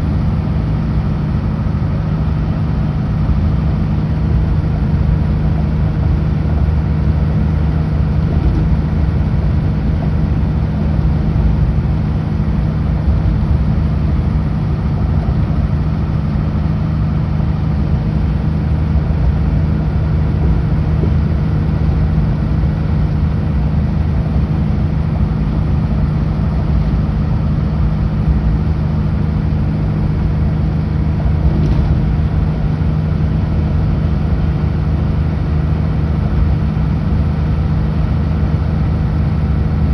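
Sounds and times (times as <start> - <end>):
road noise: 0.0 - 39.9
truck diesel engine droning: 0.0 - 39.9.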